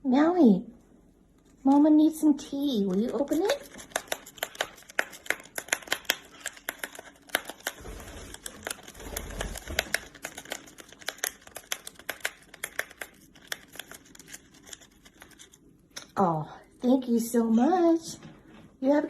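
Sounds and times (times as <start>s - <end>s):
parrot crinkling tea packet: 2.8s - 15.7s.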